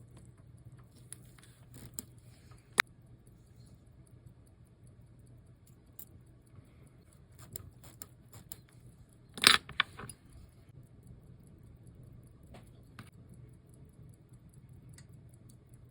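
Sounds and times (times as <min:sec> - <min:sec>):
watch ticking faintly: 0:02.8 - 0:09.2, 0:10.7 - 0:15.9
metal tools clicking and clinking: 0:09.4 - 0:10.3.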